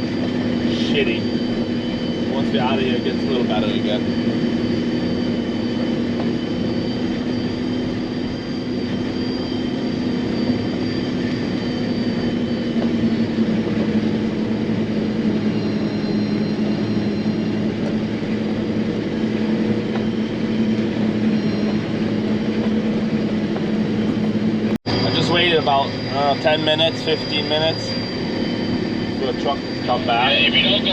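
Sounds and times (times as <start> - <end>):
harvester machine drone: 0.0 - 30.9.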